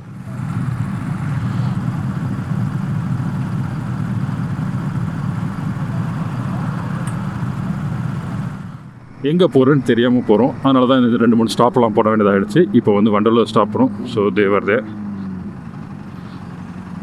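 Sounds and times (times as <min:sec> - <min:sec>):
motorcycle engine running: 0:00.0 - 0:09.2, 0:10.4 - 0:17.0.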